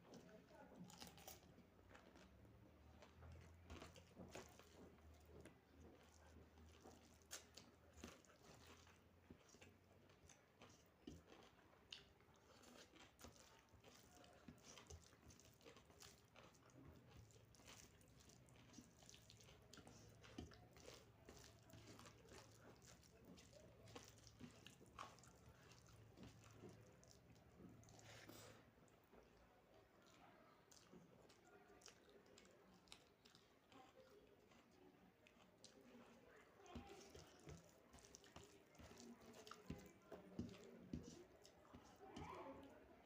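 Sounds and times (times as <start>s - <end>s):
person chewing and biting: 5.8s - 28.6s.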